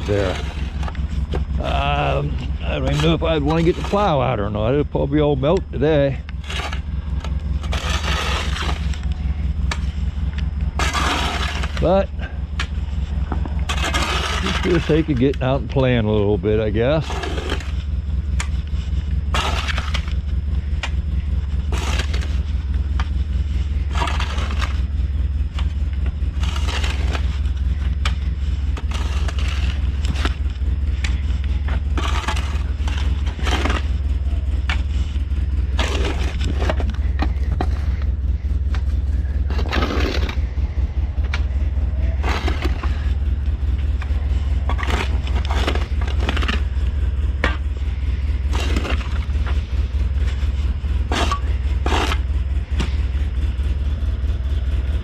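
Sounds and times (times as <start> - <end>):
snow crunching and scraping: 0.0 - 4.6, 39.0 - 40.8
snowplow engine running: 0.0 - 55.0.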